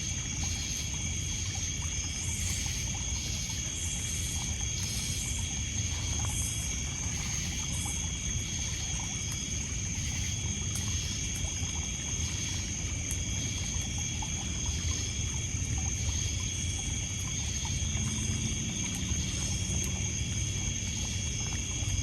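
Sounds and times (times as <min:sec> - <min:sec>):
crickets and insects trilling: 0:00.0 - 0:22.0
lake water lapping on pebbles: 0:00.0 - 0:22.0
pulsing insect chirp: 0:00.0 - 0:22.0.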